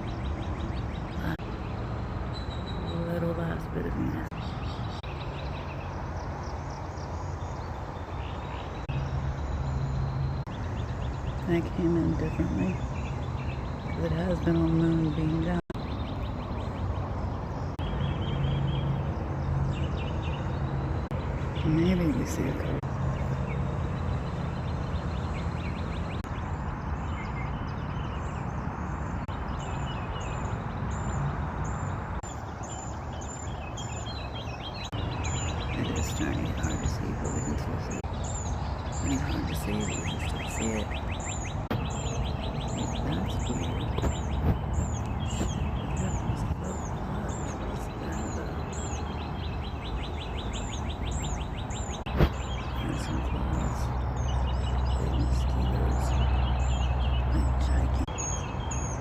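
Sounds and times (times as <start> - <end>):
birds chirping: 0.0 - 59.0
low outdoor rumble: 33.2 - 59.0.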